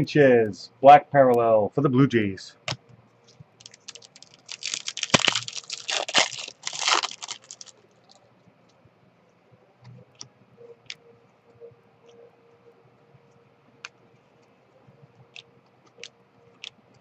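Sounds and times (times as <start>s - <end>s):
wrapper crinkling and tearing: 3.6s - 8.2s.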